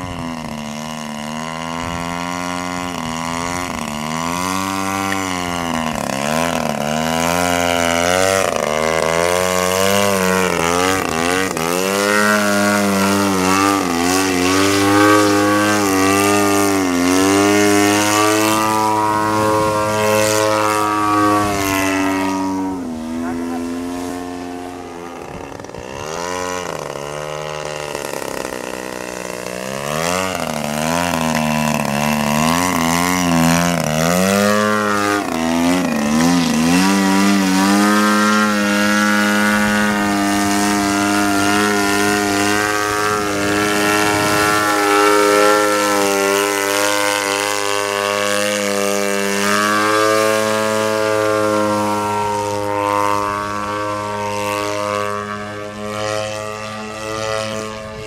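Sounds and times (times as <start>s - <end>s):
model airplane engine and propeller: 0.0s - 58.0s.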